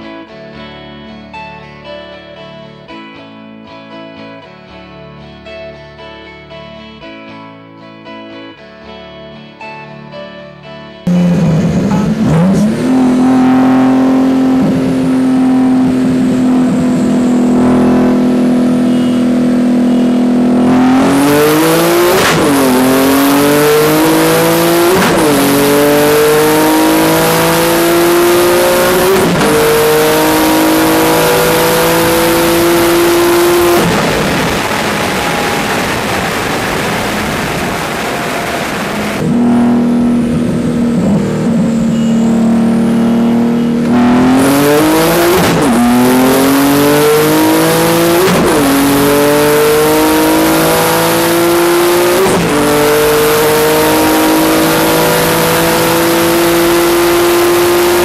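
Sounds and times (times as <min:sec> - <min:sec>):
car engine accelerating and shifting: 0:11.1 - 0:58.0
car engine cruising drone: 0:11.1 - 0:58.0.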